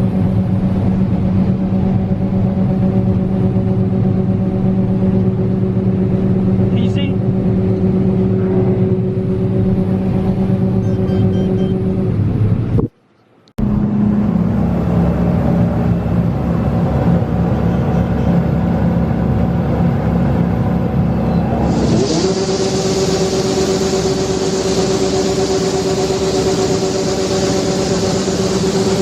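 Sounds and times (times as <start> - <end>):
heavy machinery engine droning: 0.0 - 29.0.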